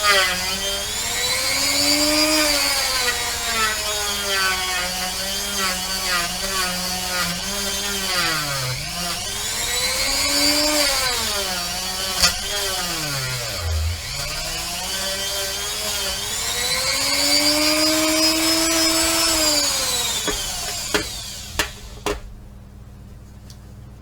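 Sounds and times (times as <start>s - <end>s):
rotary tool motor whine: 0.0s - 22.2s
sharp knocks: 20.2s - 22.3s.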